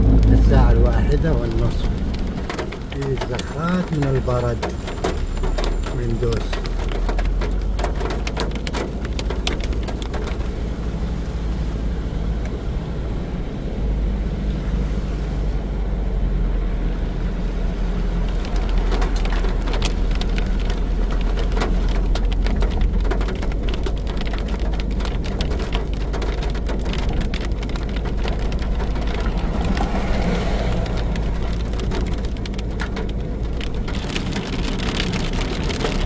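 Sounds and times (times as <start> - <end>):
hail tapping on car: 0.0 - 10.8, 18.2 - 36.0
rain: 0.0 - 36.0
road and engine rumble: 0.0 - 36.0.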